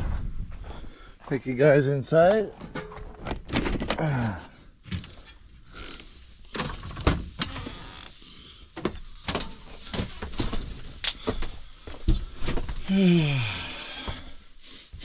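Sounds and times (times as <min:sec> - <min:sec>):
door creaking: 0:04.9 - 0:08.2.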